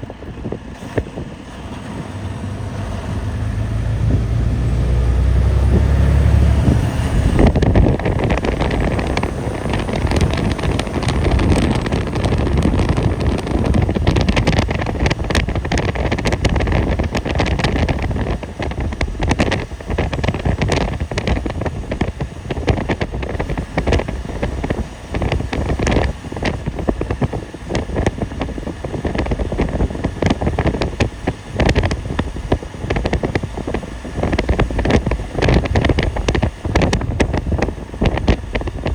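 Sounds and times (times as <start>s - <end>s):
heavy low rumble: 0.0s - 38.9s
wind buffeting microphone: 0.0s - 38.9s.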